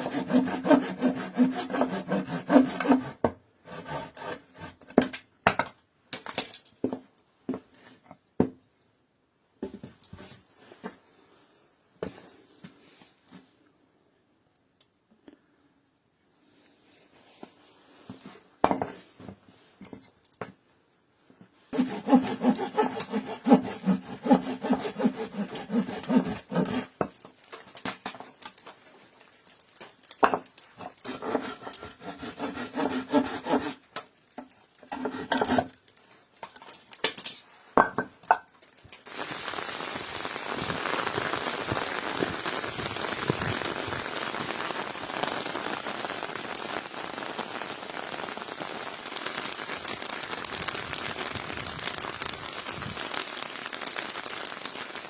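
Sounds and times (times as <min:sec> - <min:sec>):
saw cutting wood: 0:00.0 - 0:04.8, 0:21.7 - 0:27.0, 0:31.0 - 0:33.8, 0:34.9 - 0:35.7
heavy rain: 0:39.1 - 0:55.0.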